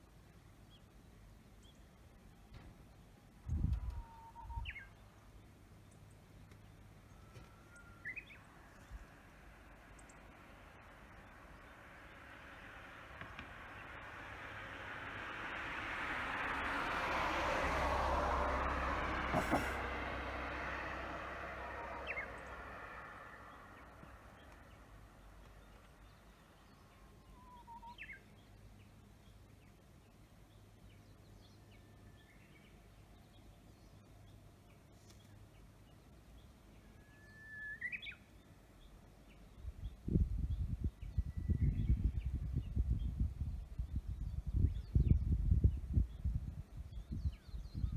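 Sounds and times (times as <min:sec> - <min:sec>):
passing vehicle: 0:06.7 - 0:27.3
birds whistling: 0:37.1 - 0:38.2.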